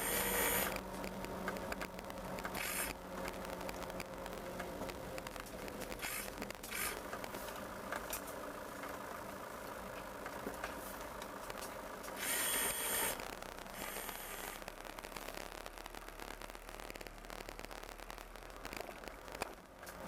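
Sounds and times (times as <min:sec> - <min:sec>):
vehicle engine running: 0:00.0 - 0:20.0
hissing noise burst: 0:12.2 - 0:19.2.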